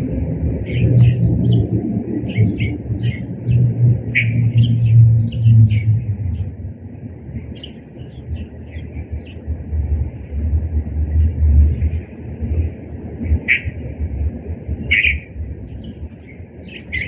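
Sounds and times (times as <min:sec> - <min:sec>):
steady low rumble: 0:00.0 - 0:17.0
small birds chirping: 0:00.6 - 0:06.6, 0:07.4 - 0:10.3, 0:13.3 - 0:14.0, 0:14.6 - 0:17.0.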